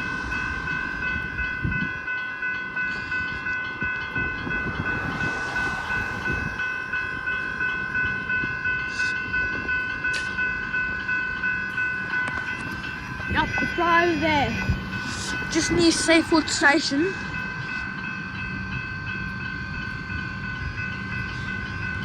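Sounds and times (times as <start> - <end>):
level crossing bell ringing: 0.0 - 22.0
broad rushing noise: 3.7 - 9.2
low rumble: 3.9 - 8.4.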